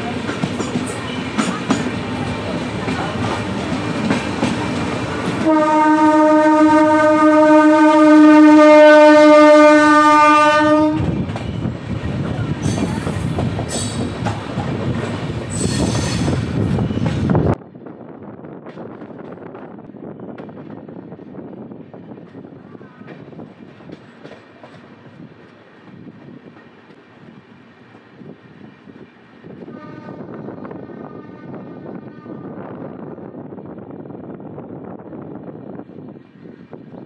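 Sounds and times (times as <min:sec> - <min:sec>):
train rolling on rails: 0:00.0 - 0:37.0
train horn: 0:05.4 - 0:11.2, 0:29.7 - 0:32.8.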